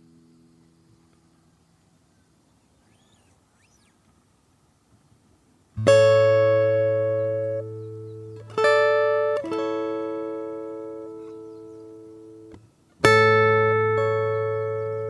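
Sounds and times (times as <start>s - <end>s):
acoustic guitar chords strummed: 5.8s - 15.0s.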